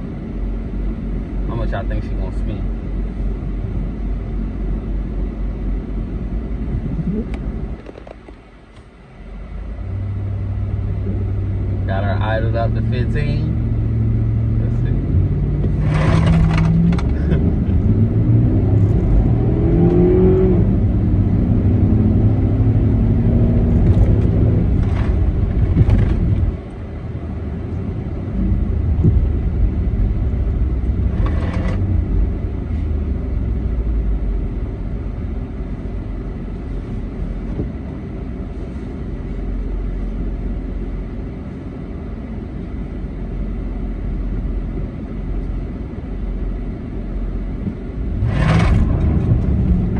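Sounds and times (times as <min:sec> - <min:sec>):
car engine revving: 0:09.8 - 0:26.7, 0:28.2 - 0:34.7, 0:48.0 - 0:49.9.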